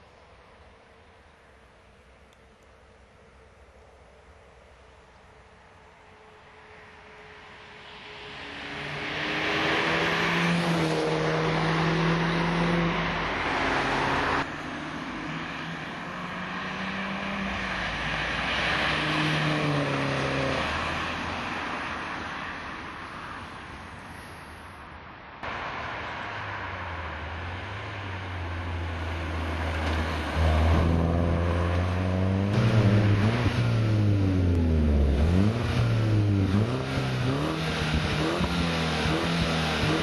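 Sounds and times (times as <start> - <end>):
car engine accelerating hard: 8.5 - 14.5, 26.8 - 40.0.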